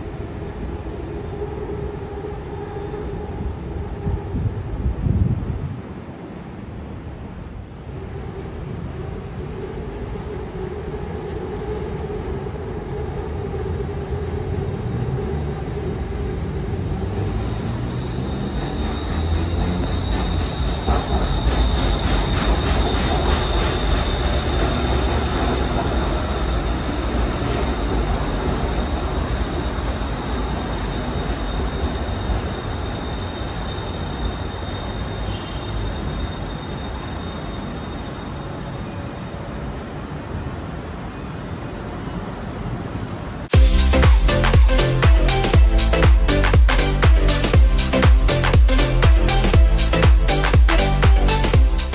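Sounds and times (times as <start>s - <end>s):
high train whine: 0.0s - 51.9s
train wheels rumbling on rails: 7.6s - 38.2s.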